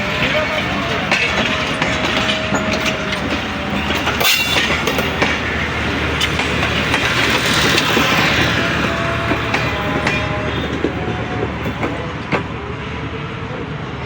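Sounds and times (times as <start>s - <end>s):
train wheels clicking over rail joints: 0.0s - 12.6s.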